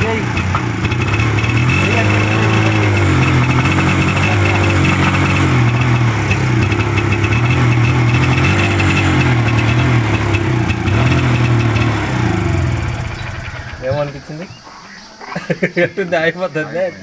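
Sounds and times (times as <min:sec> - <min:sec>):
motorcycle engine idling: 0:00.0 - 0:15.9.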